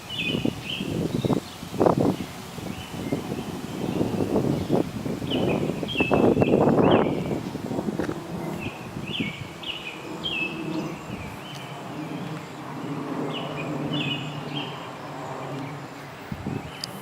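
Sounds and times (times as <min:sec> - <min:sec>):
low outdoor background: 0:00.0 - 0:17.0
bird chirping in falling notes: 0:00.1 - 0:07.4.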